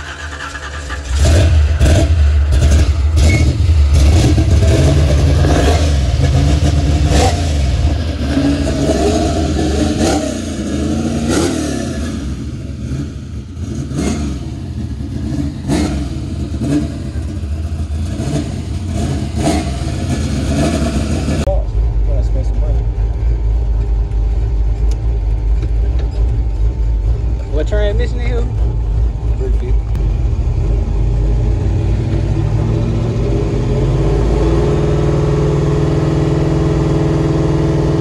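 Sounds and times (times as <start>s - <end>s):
car engine revving: 0.0s - 38.0s.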